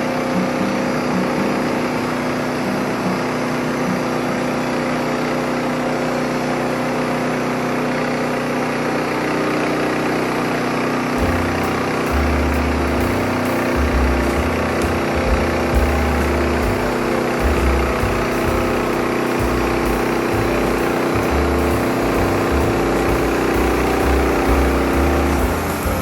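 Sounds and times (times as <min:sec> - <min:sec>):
sawmill engine running: 0:00.0 - 0:26.0
band blade sawing log: 0:11.2 - 0:26.0
low rumble: 0:11.2 - 0:26.0.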